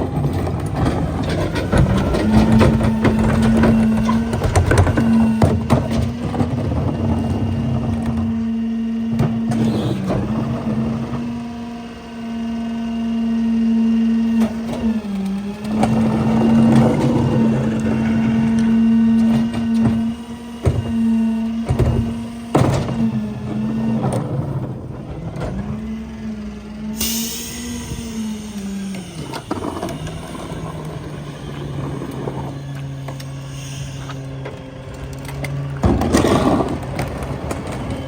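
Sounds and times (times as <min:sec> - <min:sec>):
trash cracking and knocking: 0:00.0 - 0:08.5, 0:34.4 - 0:38.0
garbage truck engine and packer drone: 0:00.0 - 0:38.0.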